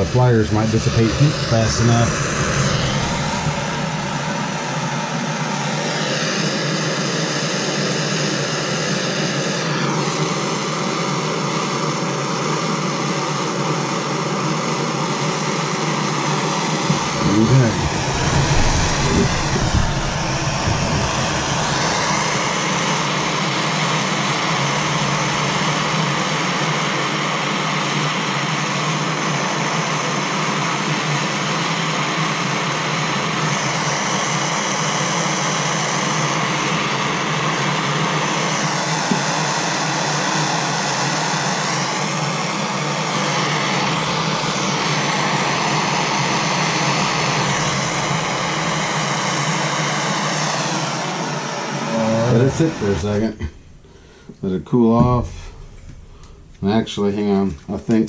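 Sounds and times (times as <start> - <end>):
gas torch flame hissing: 0.0 - 5.1, 16.4 - 27.2, 43.3 - 57.4.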